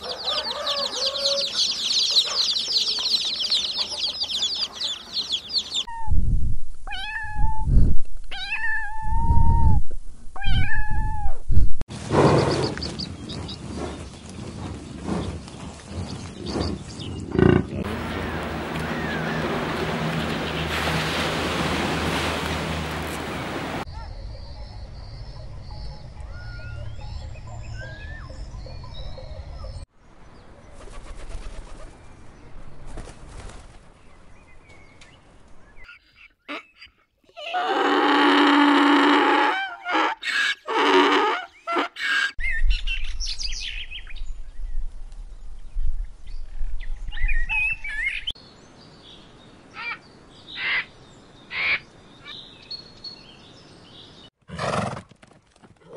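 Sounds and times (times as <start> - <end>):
bird calls and chirps: 0.0 - 6.1, 12.2 - 21.0, 23.1 - 37.1, 41.4 - 54.3.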